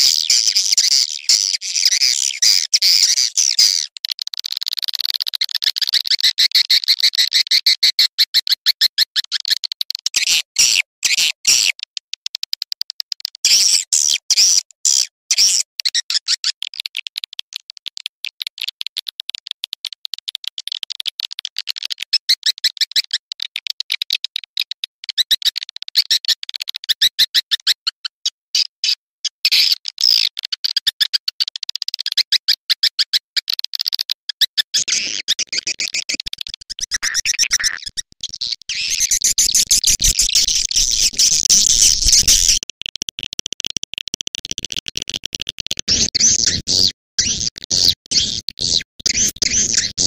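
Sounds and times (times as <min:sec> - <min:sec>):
swiftlets twittering: 0:34.8 - 0:42.6.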